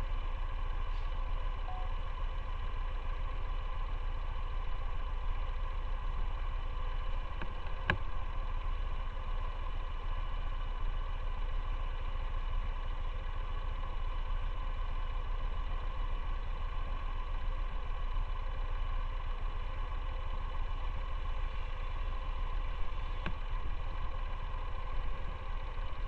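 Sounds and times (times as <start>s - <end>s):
motorcycle engine rumbling: 17.2s - 26.0s.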